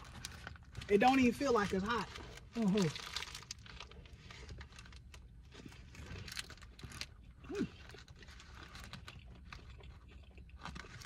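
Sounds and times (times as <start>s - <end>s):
person chewing food: 2.2s - 11.0s.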